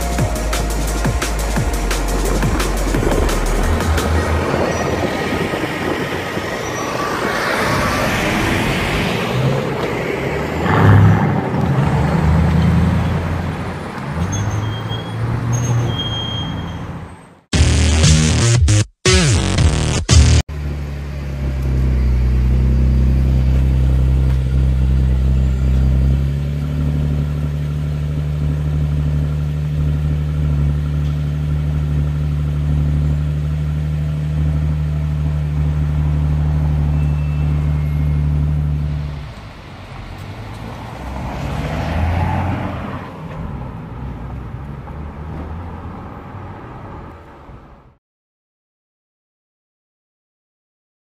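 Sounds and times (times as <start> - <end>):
car engine idling: 0.0 - 6.4
vehicle noise: 0.0 - 48.0.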